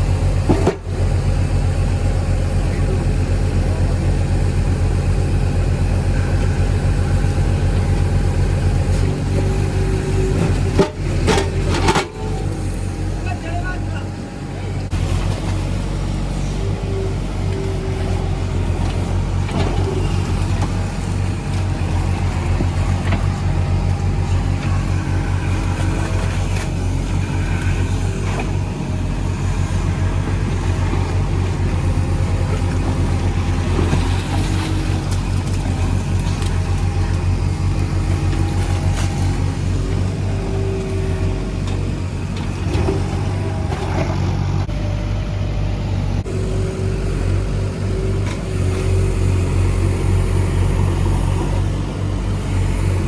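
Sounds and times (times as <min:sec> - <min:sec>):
diesel engine under load: 0:00.0 - 0:53.0.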